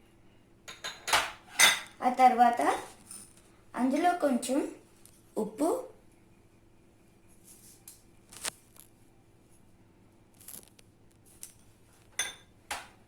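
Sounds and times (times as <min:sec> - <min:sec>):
spoon clinking against bowl: 0:12.2 - 0:12.5.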